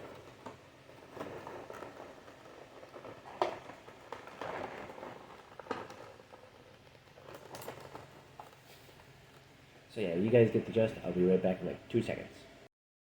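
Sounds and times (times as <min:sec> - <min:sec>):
plastic packaging rustling: 0:00.0 - 0:09.5.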